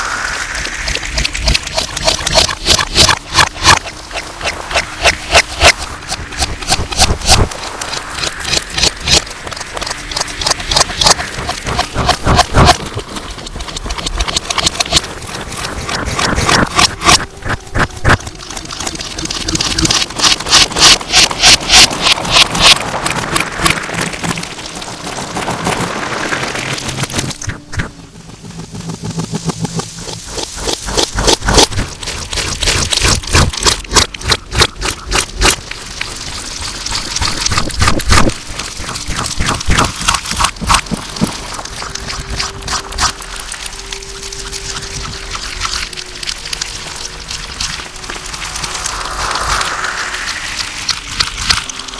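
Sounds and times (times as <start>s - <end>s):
slime squelching: 0.4s - 27.6s, 30.0s - 51.9s.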